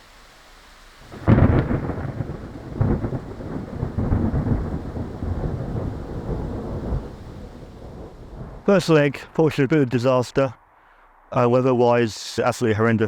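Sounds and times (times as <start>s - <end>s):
heavy rain: 0.0s - 12.5s
wind buffeting microphone: 1.0s - 9.0s.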